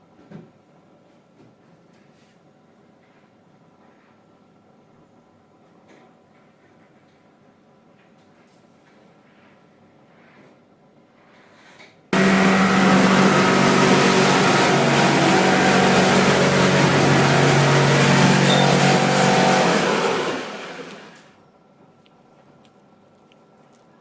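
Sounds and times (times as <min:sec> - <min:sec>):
motor-driven machine humming: 0:12.2 - 0:21.4.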